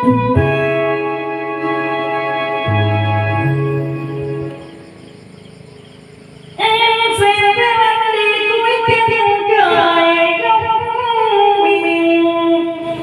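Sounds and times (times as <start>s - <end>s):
background music: 0.0s - 5.1s.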